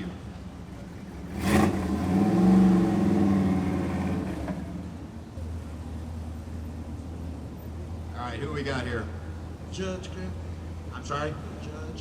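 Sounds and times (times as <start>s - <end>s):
engine idle rumble: 0.0s - 12.0s
car engine accelerating: 1.0s - 5.1s.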